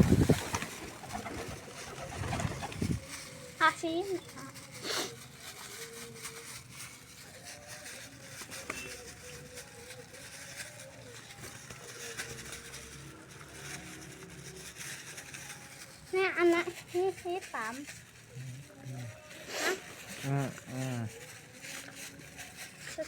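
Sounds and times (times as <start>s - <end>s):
pigeons cooing: 0.0s - 3.0s
pigeons pecking grain: 0.0s - 23.0s.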